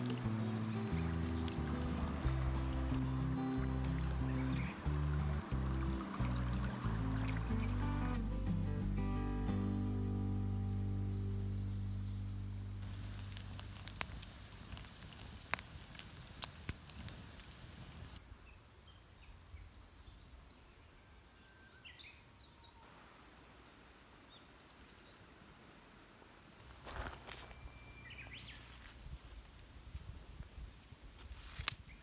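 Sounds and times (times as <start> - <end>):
campfire crackling and popping: 0.0 - 9.6, 12.8 - 18.2, 31.2 - 31.9
brief rustle: 30.4 - 32.0.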